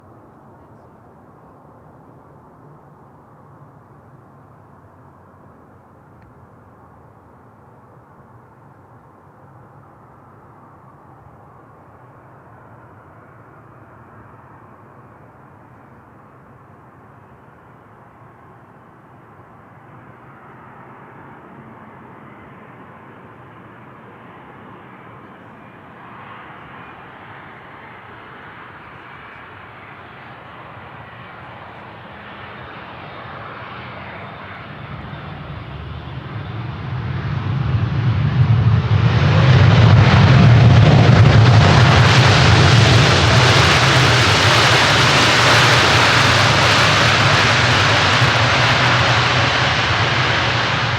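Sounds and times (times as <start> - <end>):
jet engines roaring: 19.9 - 50.9.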